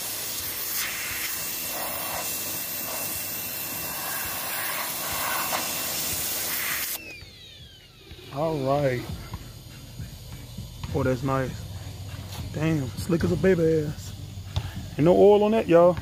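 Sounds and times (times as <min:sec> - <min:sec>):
pressure washer water jet hiss: 0:00.0 - 0:07.0
machine whine shutting off: 0:00.0 - 0:15.9.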